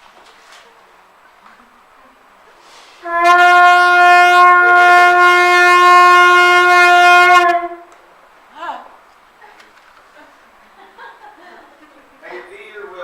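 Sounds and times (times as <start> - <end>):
shofar long blast: 3.0 - 7.9.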